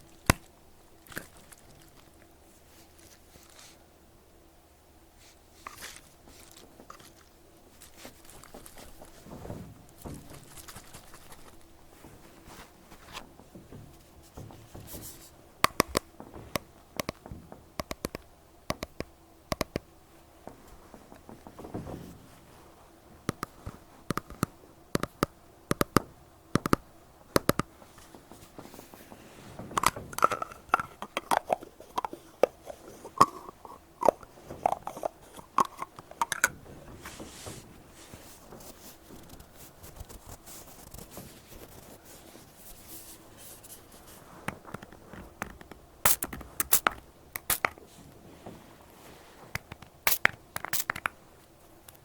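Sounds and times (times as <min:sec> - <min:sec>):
cotton pad rubbing on microphone: 0:36.8 - 0:45.3.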